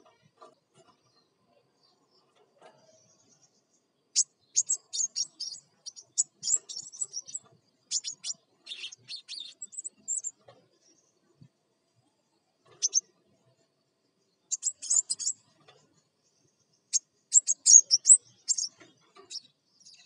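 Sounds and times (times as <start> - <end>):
bird chips and twitters: 2.1 - 11.0, 12.7 - 13.1, 14.5 - 15.6, 16.9 - 20.0.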